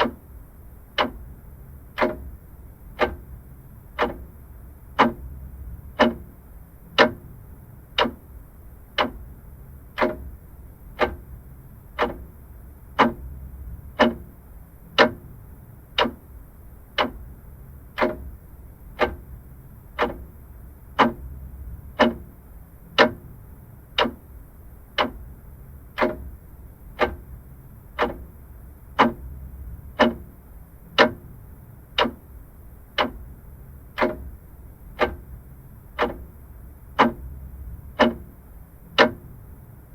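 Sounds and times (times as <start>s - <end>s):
mechanical clock ticking: 0.0s - 39.7s.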